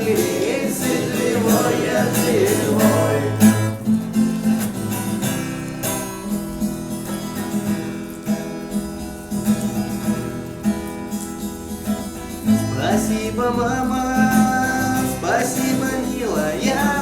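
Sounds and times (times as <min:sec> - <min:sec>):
person singing: 0:00.0 - 0:03.9, 0:12.4 - 0:17.0
acoustic guitar strumming chords: 0:00.0 - 0:17.0.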